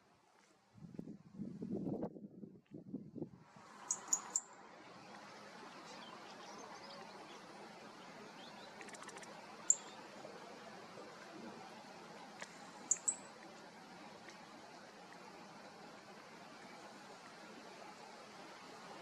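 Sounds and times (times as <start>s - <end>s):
low background hiss: 3.4s - 19.0s
high-pitched bird chirps: 3.9s - 4.5s, 8.5s - 10.0s, 12.9s - 13.3s.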